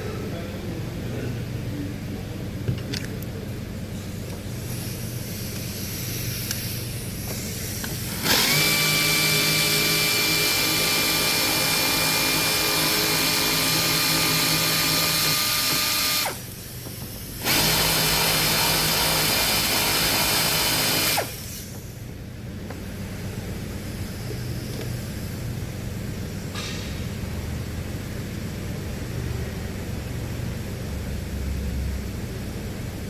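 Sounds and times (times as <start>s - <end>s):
power tool whining: 5.5s - 22.0s.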